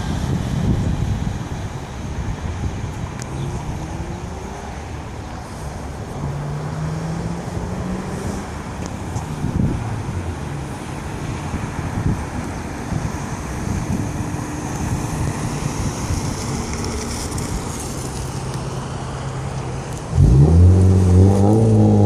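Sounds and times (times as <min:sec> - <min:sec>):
car exhaust note cruising: 0:19.5 - 0:22.0.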